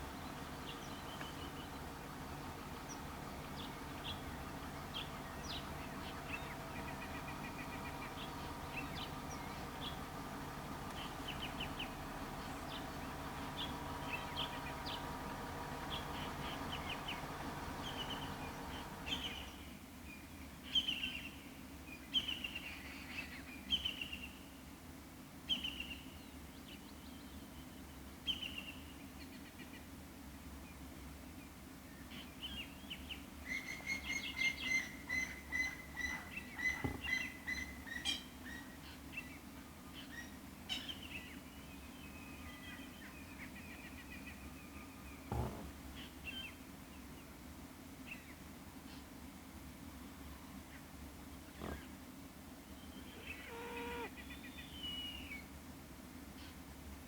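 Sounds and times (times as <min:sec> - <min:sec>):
steady low hum: 0:00.0 - 0:19.6
birds chirping: 0:00.0 - 0:19.7, 0:32.9 - 0:39.0, 0:52.7 - 0:55.4.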